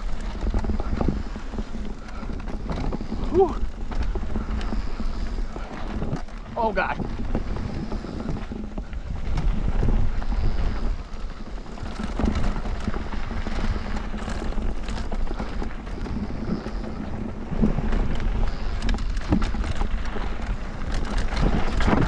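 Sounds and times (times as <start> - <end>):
bike rattling and knocking: 0.0 - 22.0
tyres rumbling on dirt: 0.0 - 22.0
wind rushing over microphone: 0.0 - 22.0.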